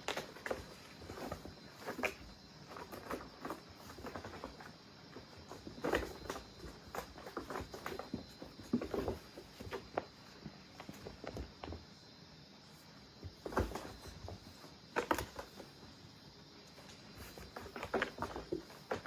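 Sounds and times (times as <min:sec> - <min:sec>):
paws scrambling on a surface: 0:00.0 - 0:11.8.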